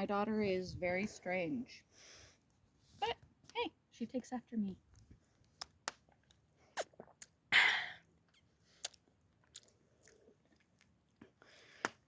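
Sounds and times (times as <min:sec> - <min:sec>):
mouth clicks and smacks eating: 0:04.9 - 0:07.4, 0:08.3 - 0:12.0.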